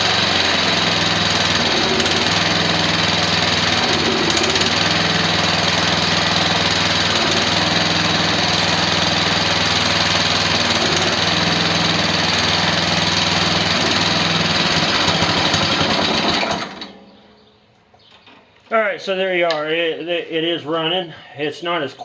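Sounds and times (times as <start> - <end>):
small engine running loudly: 0.0 - 17.0.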